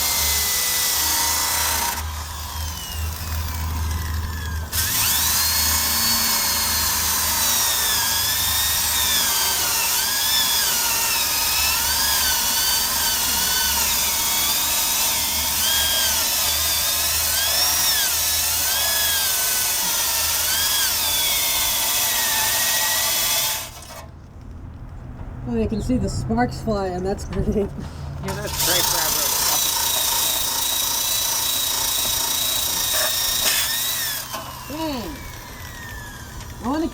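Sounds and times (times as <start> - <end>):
drill motor whine: 0.0 - 24.0, 28.3 - 36.9
wire brush scrubbing metal: 28.2 - 36.9.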